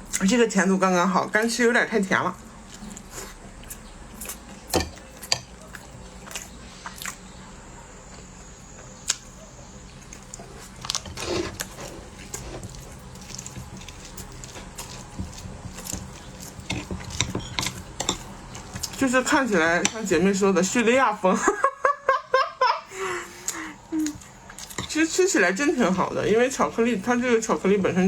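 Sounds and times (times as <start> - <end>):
chewing with mouth clicks: 2.2 - 7.4, 8.1 - 20.2, 23.3 - 27.1.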